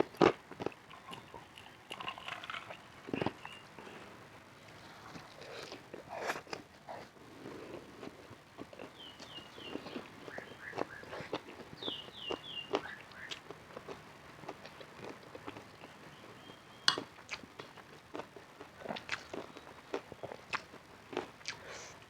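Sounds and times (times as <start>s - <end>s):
chewing and lip smacks: 7.7s - 14.0s, 16.9s - 22.0s.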